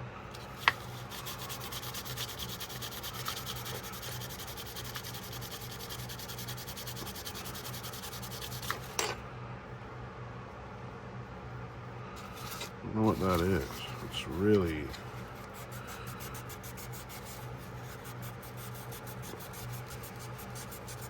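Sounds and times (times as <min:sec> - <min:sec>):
sandpaper rubbing on steel: 0:00.8 - 0:08.8, 0:13.1 - 0:21.0.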